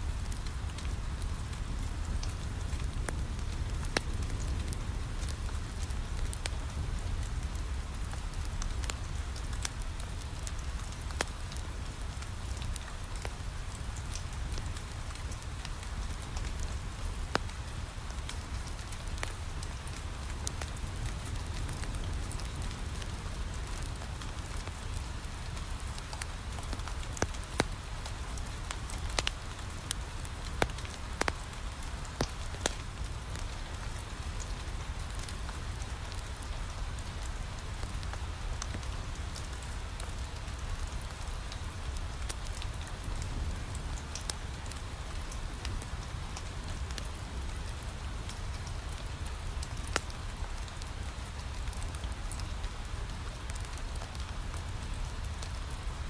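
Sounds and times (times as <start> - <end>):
wood fire crackling: 0.0 - 55.8
rain on a window: 0.0 - 56.0.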